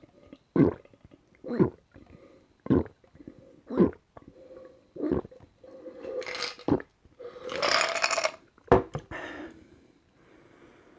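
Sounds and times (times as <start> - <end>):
person gulping water: 0.3 - 2.0.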